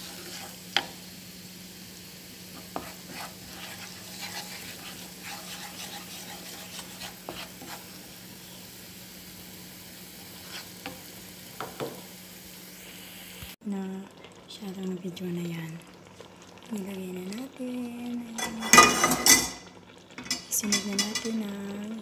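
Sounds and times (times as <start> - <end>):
wooden spoon scraping a pan: 0.0 - 1.0, 2.5 - 8.2, 10.1 - 11.1
garlic sizzling in hot oil: 0.0 - 22.0.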